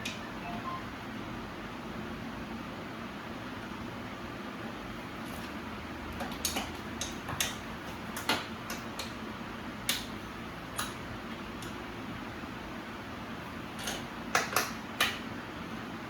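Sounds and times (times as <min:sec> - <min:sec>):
fan-like hum: 0:00.0 - 0:16.0.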